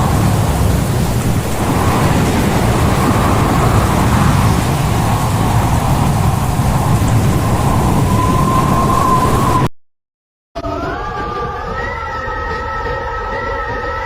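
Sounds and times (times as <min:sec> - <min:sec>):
storm wind and heavy seas: 0:00.0 - 0:09.7
deep rumble: 0:01.0 - 0:09.1.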